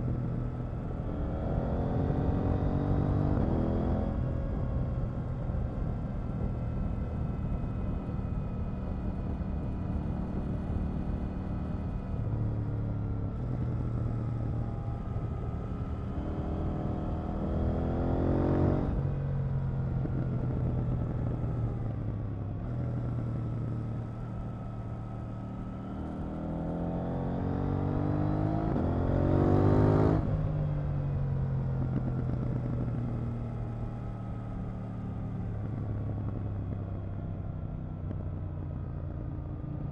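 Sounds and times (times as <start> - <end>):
motorcycle engine revving: 13.4 - 22.0, 22.6 - 36.9.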